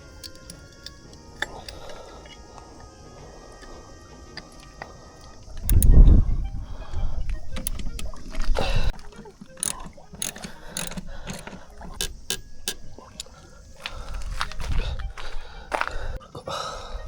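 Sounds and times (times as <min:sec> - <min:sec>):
hand tools clicking on metal: 0:00.0 - 0:02.9, 0:03.5 - 0:15.9.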